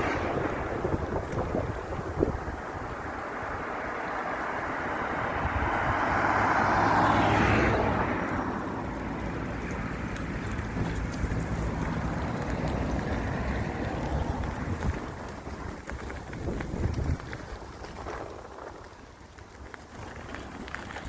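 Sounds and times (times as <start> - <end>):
vehicle passing by: 0.0 - 15.7.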